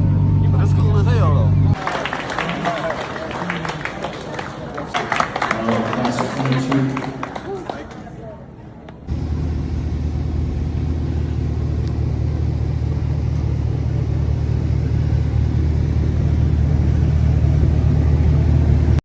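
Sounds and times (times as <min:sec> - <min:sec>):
car engine rumbling: 0:00.0 - 0:03.2, 0:08.5 - 0:19.0.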